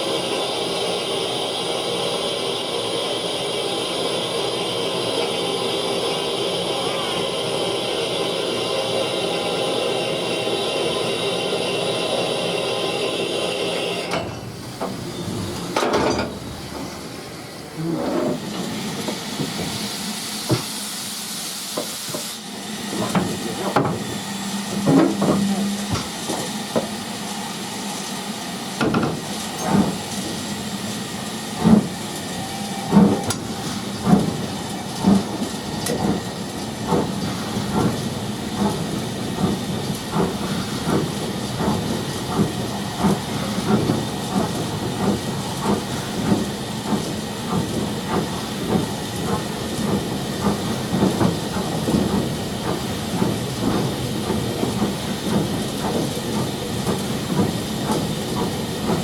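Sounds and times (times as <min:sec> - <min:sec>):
hiss of steam: 0:17.1 - 0:59.0
steam train knocks: 0:18.2 - 0:20.8, 0:21.7 - 0:27.1, 0:28.8 - 0:59.0.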